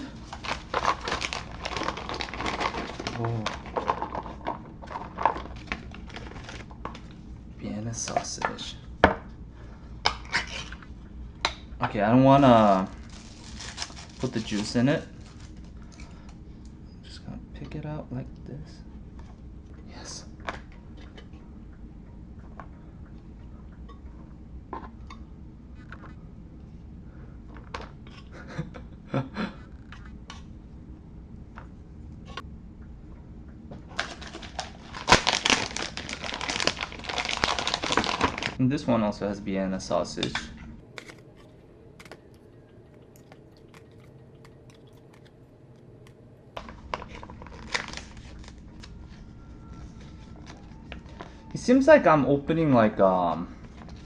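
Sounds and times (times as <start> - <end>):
plastic crinkling: 0.0 - 7.2, 12.7 - 16.4, 33.9 - 38.6, 40.9 - 51.5
food packaging handled: 0.1 - 7.1, 12.8 - 16.1, 33.9 - 38.6, 40.9 - 45.4, 46.1 - 51.5.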